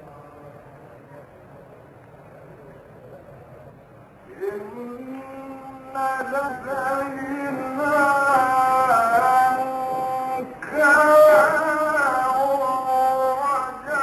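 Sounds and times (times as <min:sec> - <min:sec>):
man chanting melodically: 0:04.3 - 0:14.0.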